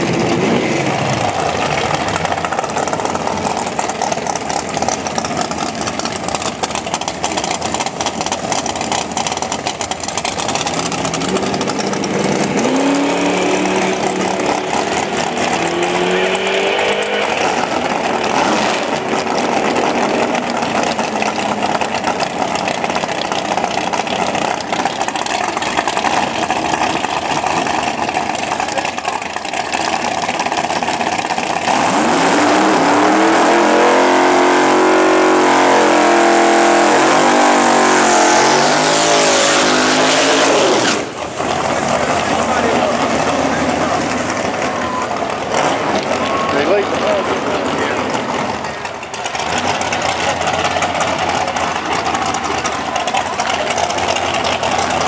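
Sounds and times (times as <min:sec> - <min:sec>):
loud car engine revving: 0:00.0 - 0:55.0.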